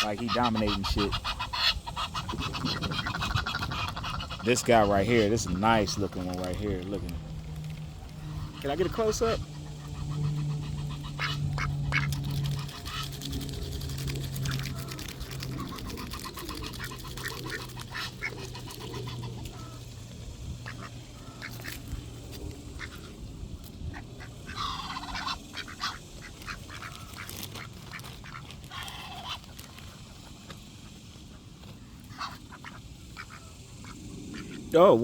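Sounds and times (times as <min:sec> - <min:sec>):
ducks pecking clicks: 0:00.0 - 0:34.6
ducks chattering and quacking: 0:00.0 - 0:35.0.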